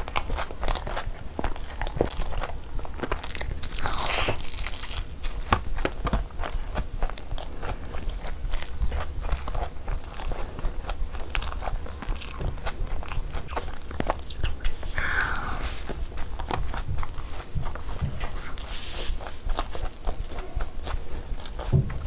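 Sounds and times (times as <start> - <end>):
wet chewing and biting: 0.0 - 22.0
scratchy noise: 18.1 - 19.4.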